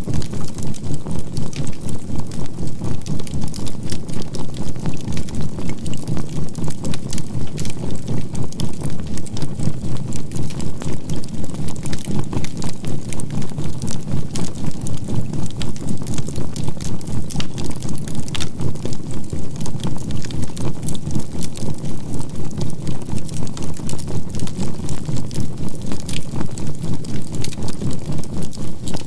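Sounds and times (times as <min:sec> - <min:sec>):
campfire crackling and popping: 0:11.8 - 0:22.0, 0:22.8 - 0:29.0.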